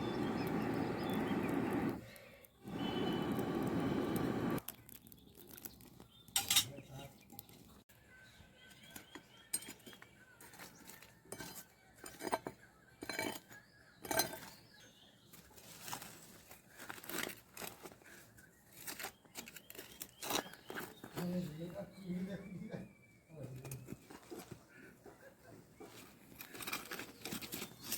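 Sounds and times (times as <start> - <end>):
utensils clinking against pots: 6.4 - 6.8, 11.3 - 14.5.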